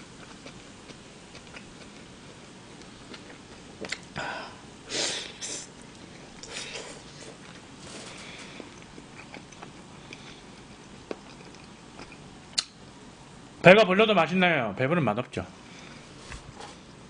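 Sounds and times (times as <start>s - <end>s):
man chewing: 0.1s - 4.2s, 4.9s - 12.8s
mouth clicks: 12.5s - 12.8s.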